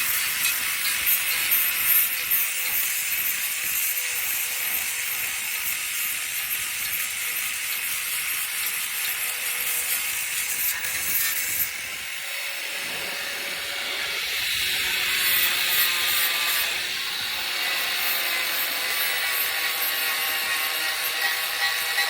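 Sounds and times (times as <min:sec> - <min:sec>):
handheld grinder grinding metal: 0:00.0 - 0:22.0.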